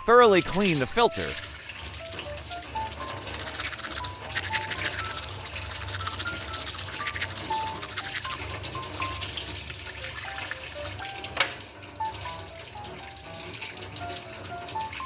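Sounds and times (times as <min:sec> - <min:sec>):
tap water running: 0:00.2 - 0:15.0.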